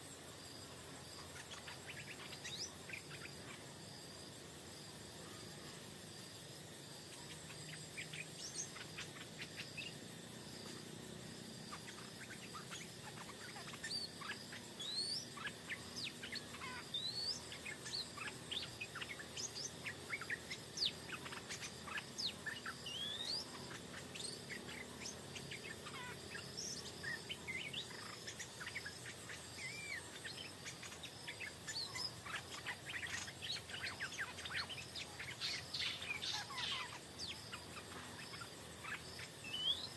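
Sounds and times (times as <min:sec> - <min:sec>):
bulbuls chirping: 0:00.0 - 0:03.9, 0:07.0 - 0:39.9
high insect trill: 0:00.0 - 0:39.9.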